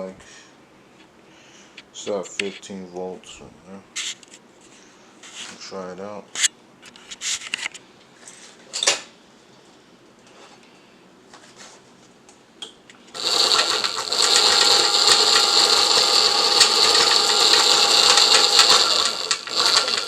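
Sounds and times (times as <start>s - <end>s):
electric motor whining and clattering: 13.1s - 20.0s.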